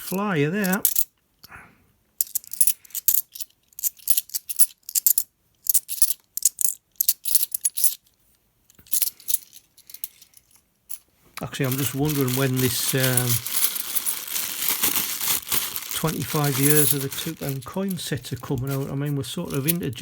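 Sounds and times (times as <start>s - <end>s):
coins clinking: 0.7s - 1.1s, 2.2s - 8.0s, 11.6s - 20.0s.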